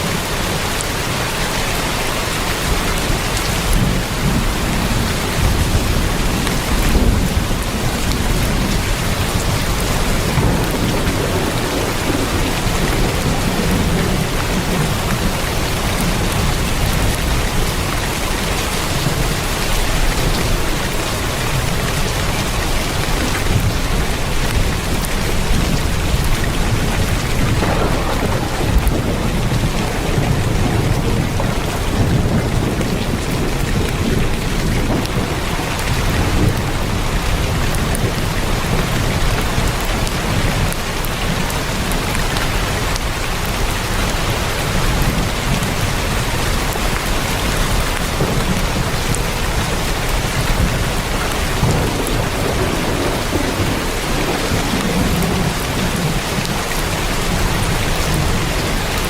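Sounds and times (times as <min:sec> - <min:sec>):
heavy rain on a tin roof: 0:00.0 - 0:59.0
low rumble: 0:24.5 - 0:35.4.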